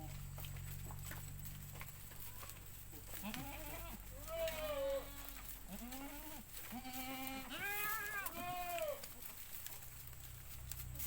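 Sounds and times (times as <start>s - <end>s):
goats bleating: 2.2s - 9.3s.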